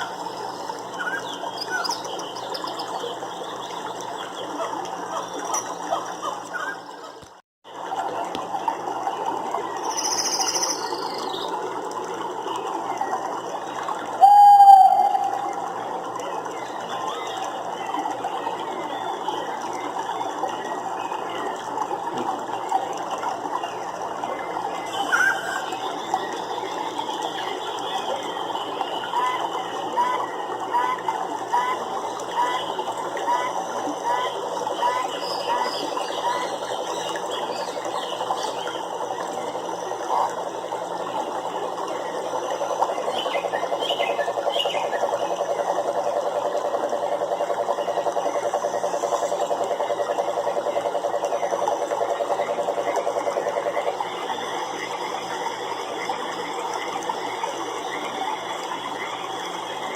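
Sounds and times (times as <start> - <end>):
frogs trilling: 9.6 - 11.6, 13.1 - 21.6, 24.4 - 59.9
dense chorus of rapid clicking: 41.9 - 59.9.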